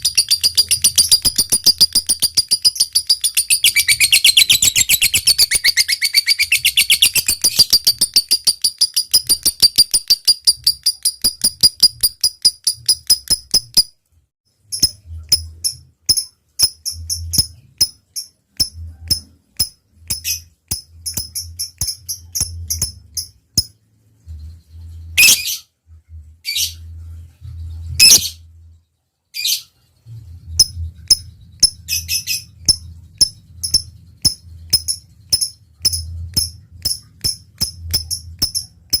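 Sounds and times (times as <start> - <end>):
harsh bird calls: 0.0 - 8.6
lovebird chirping: 0.0 - 13.9, 14.6 - 25.7, 26.4 - 28.8, 29.4 - 39.0.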